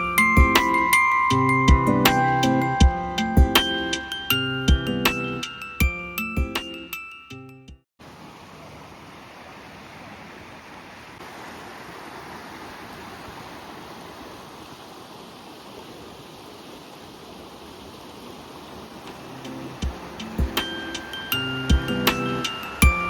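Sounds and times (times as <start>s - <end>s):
music: 0.0s - 7.8s, 19.2s - 23.0s
running water rushing: 8.0s - 23.0s.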